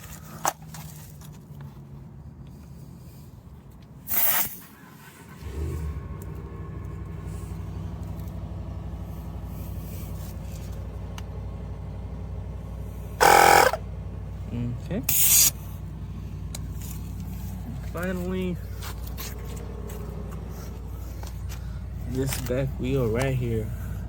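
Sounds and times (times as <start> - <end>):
air compressor running: 12.9 - 13.8, 15.1 - 15.6.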